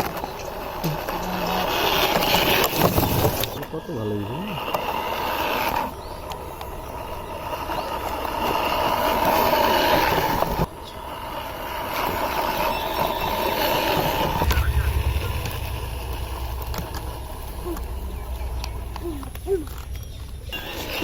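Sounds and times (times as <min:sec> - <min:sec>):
low rumble: 0:14.0 - 0:20.6.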